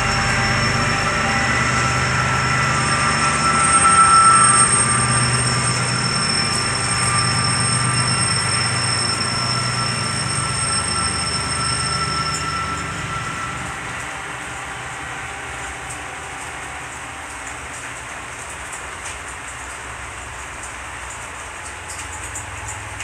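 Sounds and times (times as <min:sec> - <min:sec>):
high wheel squealing: 0:00.0 - 0:17.4
train rumble: 0:00.0 - 0:23.0.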